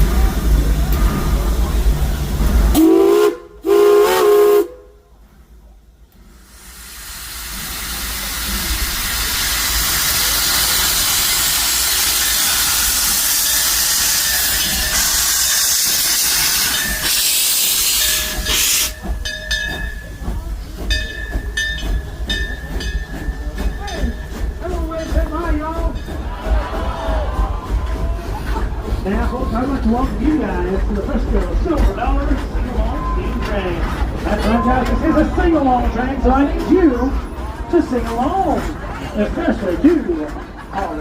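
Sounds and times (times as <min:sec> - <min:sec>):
steam locomotive whistle: 0:02.7 - 0:05.0
steam hissing: 0:06.2 - 0:29.7.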